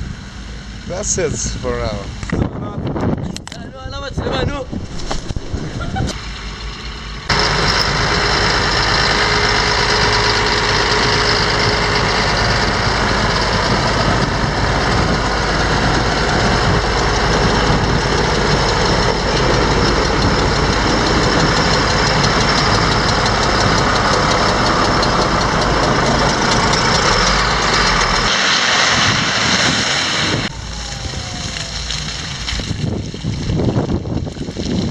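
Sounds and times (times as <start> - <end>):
heavy vehicle engine rumbling: 0.0 - 34.9.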